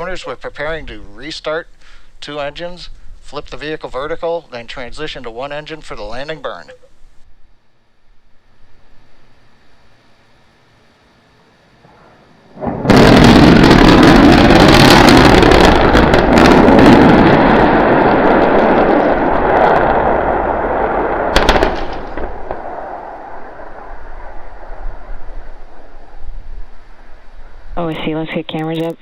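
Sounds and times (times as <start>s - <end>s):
rumbling crackling roar: 11.9s - 27.8s
rocket explosion blast: 12.5s - 27.6s
sharp crack: 12.6s - 26.2s.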